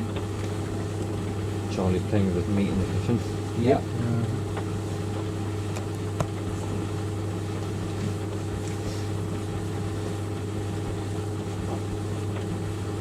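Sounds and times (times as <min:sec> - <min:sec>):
tumble dryer humming: 0:00.0 - 0:13.0.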